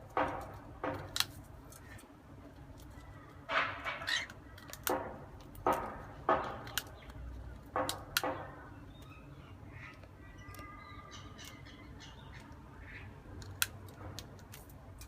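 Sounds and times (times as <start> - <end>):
bird beak crunching biscuit: 13.2 - 15.0.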